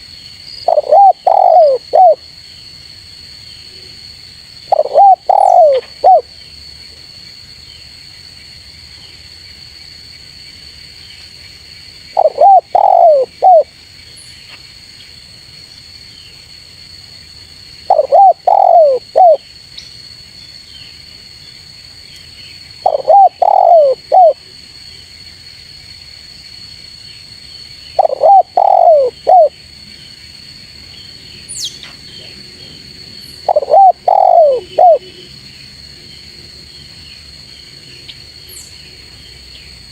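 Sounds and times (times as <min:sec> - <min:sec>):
dove cooing: 0:00.6 - 0:02.2, 0:04.7 - 0:06.3, 0:12.2 - 0:13.7, 0:17.9 - 0:19.4, 0:22.8 - 0:24.4, 0:28.0 - 0:29.5, 0:33.4 - 0:35.2.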